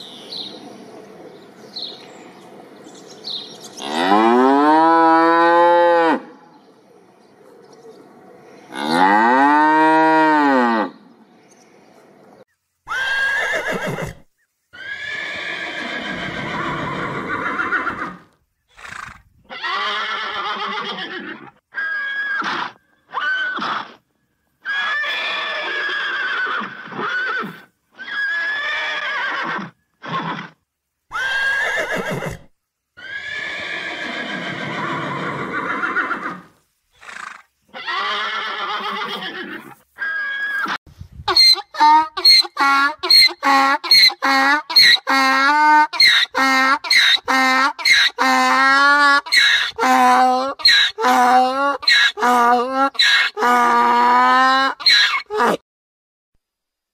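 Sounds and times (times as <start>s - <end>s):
horses neighing: 12.9s - 14.2s, 14.8s - 24.0s, 24.6s - 40.8s.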